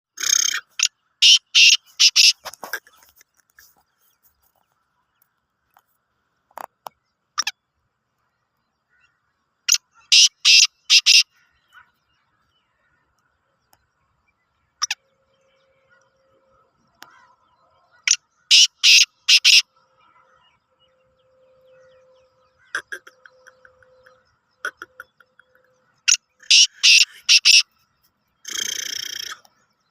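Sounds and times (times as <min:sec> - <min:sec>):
bird calling harsh notes: 0:00.1 - 0:04.1, 0:09.7 - 0:11.8, 0:18.1 - 0:19.7, 0:22.5 - 0:27.8, 0:28.4 - 0:29.6.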